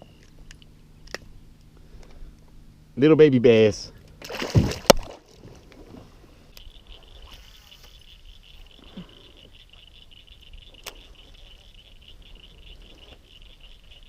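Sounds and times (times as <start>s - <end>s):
high-pitched chirring chorus: 6.5s - 14.0s.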